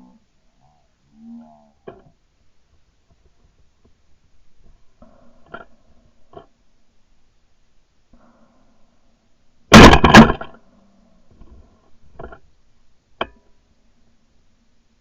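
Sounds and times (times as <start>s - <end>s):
shotgun shots: 9.7s - 10.5s.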